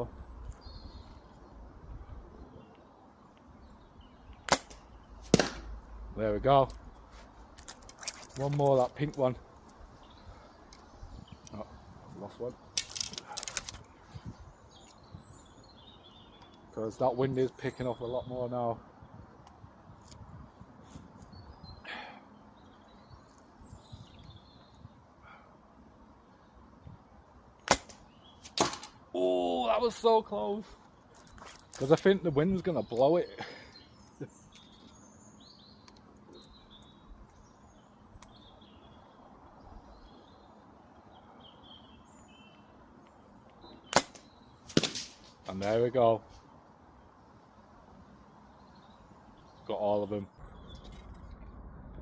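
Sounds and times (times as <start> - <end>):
faint bird chirps: 0.0 - 5.2, 28.0 - 44.7
brief rustle: 7.0 - 8.9, 12.8 - 14.3
wind gusting over microphone: 8.4 - 15.7, 18.1 - 21.8, 50.3 - 52.0.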